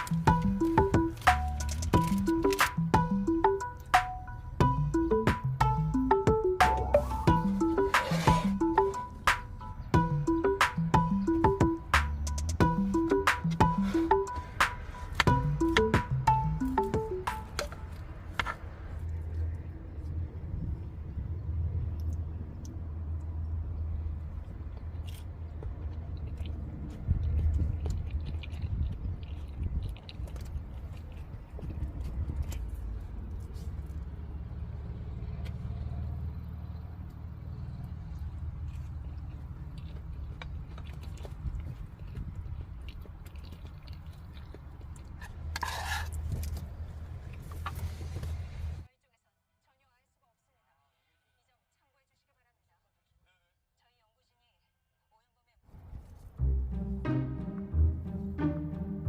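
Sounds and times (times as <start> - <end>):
person chewing food: 0.0 - 4.0, 10.0 - 19.6, 24.1 - 34.1, 37.9 - 48.3
scraping rustle: 7.1 - 8.6, 45.2 - 46.7
wind rumbling on microphone: 24.4 - 33.5.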